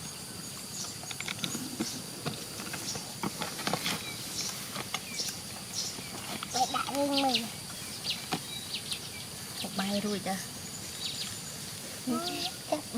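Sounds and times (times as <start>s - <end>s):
faint high hiss: 0.0s - 12.9s
rustling: 0.9s - 7.5s.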